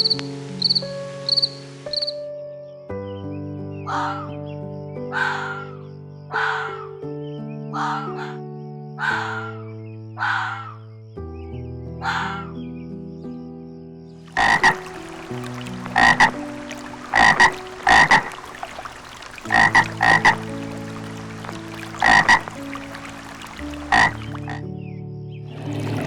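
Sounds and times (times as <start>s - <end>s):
frog croaking: 0.0s - 2.1s, 5.1s - 6.9s, 9.0s - 9.6s, 10.2s - 10.8s, 14.3s - 24.7s.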